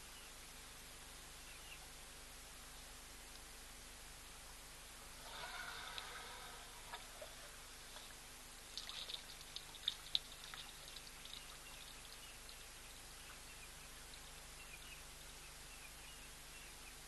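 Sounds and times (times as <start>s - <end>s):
steady outdoor hiss: 0.0s - 17.0s
bird chirping: 8.8s - 17.0s.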